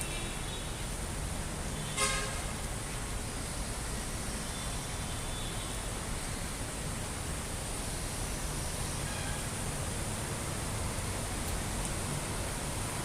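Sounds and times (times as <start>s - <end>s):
street noise: 0.0s - 13.0s
vehicle horn toot: 1.8s - 2.4s.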